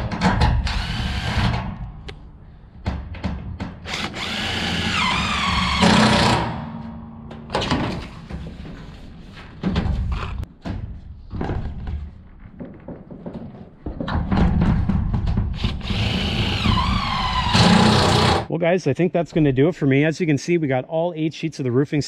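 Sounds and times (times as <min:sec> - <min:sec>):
cordless drill driving screw: 0:03.9 - 0:06.4
knocks and clunks: 0:09.5 - 0:17.4.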